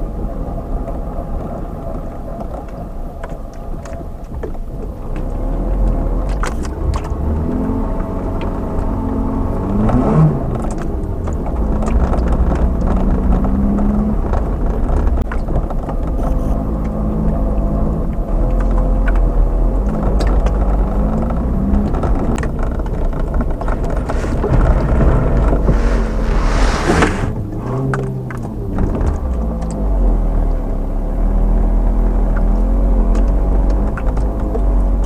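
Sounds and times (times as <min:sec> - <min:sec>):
road rumble: 0:00.0 - 0:35.0
car engine accelerating: 0:05.2 - 0:15.3, 0:16.1 - 0:35.0
hiss: 0:25.6 - 0:27.4.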